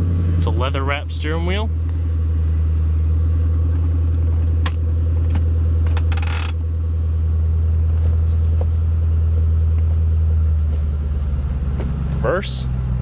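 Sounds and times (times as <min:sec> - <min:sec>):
car engine idling: 0:00.0 - 0:13.0
short rattle: 0:04.4 - 0:06.6.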